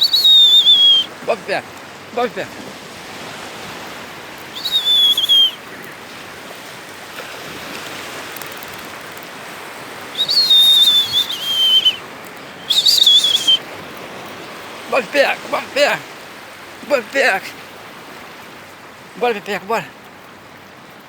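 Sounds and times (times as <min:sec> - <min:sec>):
person whistling: 0:00.0 - 0:01.1, 0:04.5 - 0:05.6, 0:10.1 - 0:12.0, 0:12.6 - 0:13.6
surf and wind hiss: 0:00.0 - 0:21.0.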